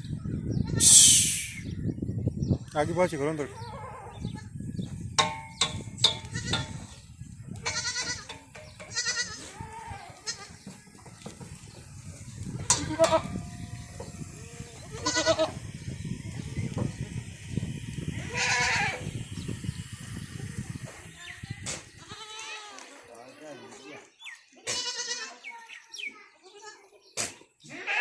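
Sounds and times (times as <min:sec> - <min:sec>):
goats bleating: 0:07.6 - 0:08.3, 0:08.9 - 0:10.6, 0:14.4 - 0:15.6, 0:18.2 - 0:19.0, 0:22.0 - 0:22.9, 0:24.7 - 0:25.4, 0:27.7 - 0:28.0.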